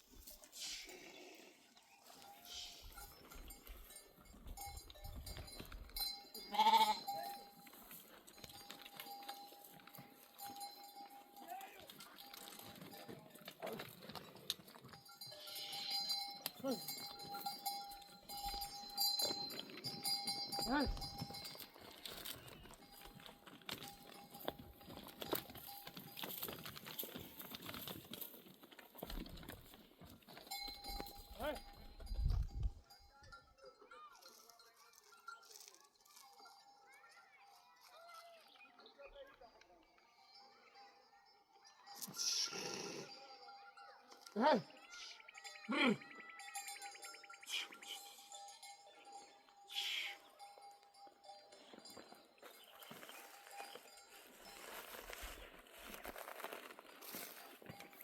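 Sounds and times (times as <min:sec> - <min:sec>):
sheep hooves pattering on ground: 0:00.0 - 0:42.3, 0:43.6 - 0:58.0
animal bell ringing: 0:01.8 - 0:58.0
sheep bleating: 0:06.4 - 0:07.4, 0:15.4 - 0:16.9.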